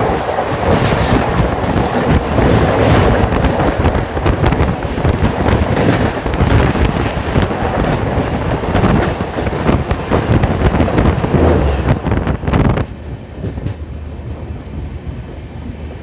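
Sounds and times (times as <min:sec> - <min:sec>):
sharp clicks of train wheels: 0:00.0 - 0:14.8
train wheels rumbling and rattling: 0:00.0 - 0:16.0.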